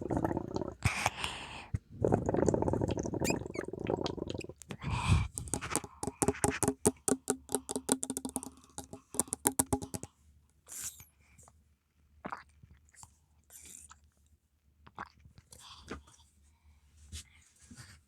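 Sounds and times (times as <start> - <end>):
quick sharp taps: 5.4 - 10.1.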